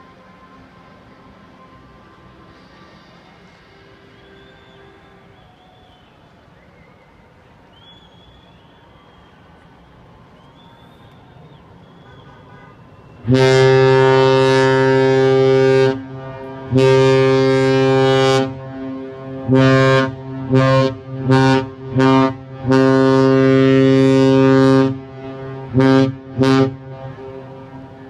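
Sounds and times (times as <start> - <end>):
ship's horn blasts: 10.6 - 28.0.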